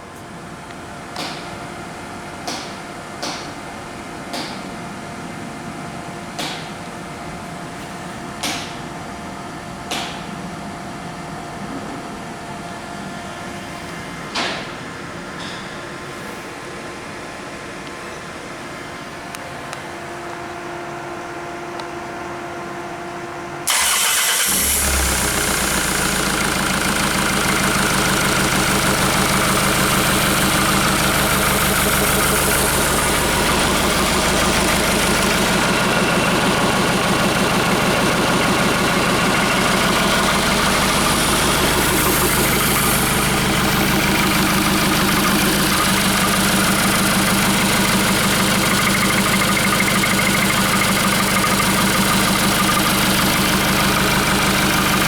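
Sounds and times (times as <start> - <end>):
diesel engine idling: 23.7 - 55.0.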